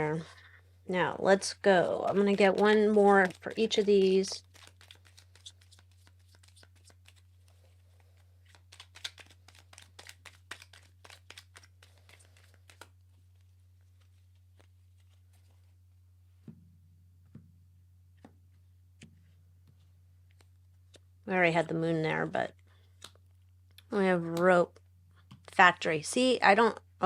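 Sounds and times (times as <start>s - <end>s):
low steady hum: 0.0s - 8.8s, 11.5s - 27.0s
cards shuffling: 1.8s - 15.7s, 19.0s - 21.0s.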